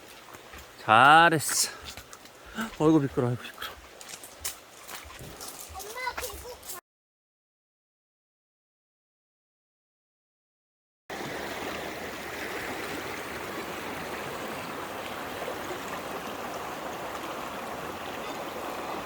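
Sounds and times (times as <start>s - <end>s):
stream running over rocks: 0.0s - 6.8s, 11.1s - 19.0s.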